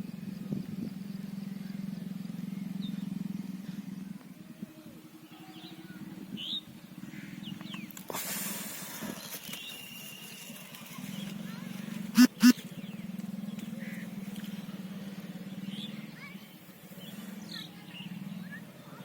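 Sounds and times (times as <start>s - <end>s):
high bird chirps: 12.2s - 12.6s.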